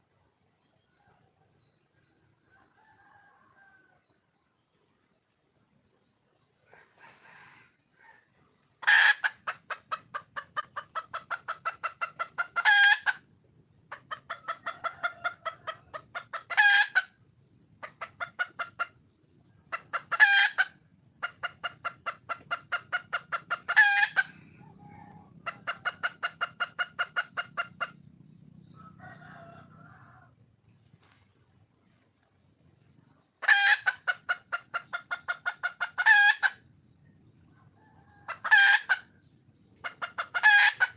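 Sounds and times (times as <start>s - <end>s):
hen cackling: 6.7s - 13.3s, 13.9s - 17.2s, 19.6s - 28.0s, 33.3s - 36.7s, 37.6s - 40.9s.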